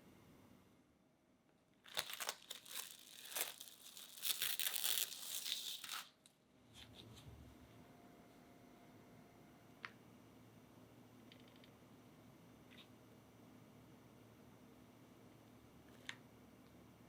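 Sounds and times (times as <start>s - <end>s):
thin sheet crinkling and tearing: 1.9s - 6.2s.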